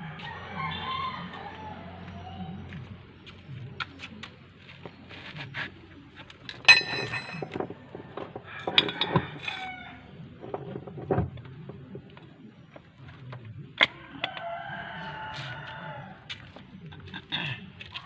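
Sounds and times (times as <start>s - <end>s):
metal tools clinking and knocking: 6.6s - 7.8s, 8.6s - 9.6s
ringing clatter of metal: 6.6s - 7.8s
loud metallic clang ringing: 6.7s - 7.5s.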